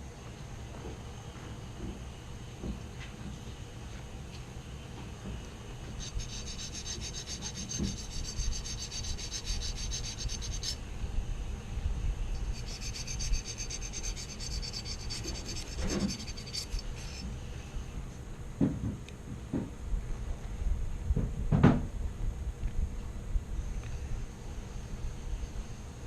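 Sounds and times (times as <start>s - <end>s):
rapid scrubbing: 5.9s - 10.8s, 12.4s - 17.2s.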